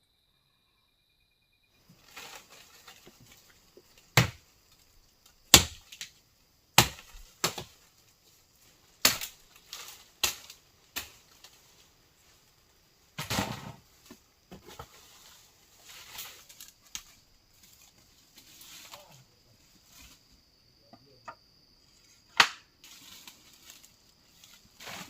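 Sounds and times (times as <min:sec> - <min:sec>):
wood crackling: 0:01.8 - 0:06.2, 0:06.8 - 0:19.2
axe chopping wood: 0:04.2 - 0:04.4, 0:05.5 - 0:06.1, 0:06.8 - 0:07.7, 0:09.0 - 0:09.3, 0:22.4 - 0:22.6.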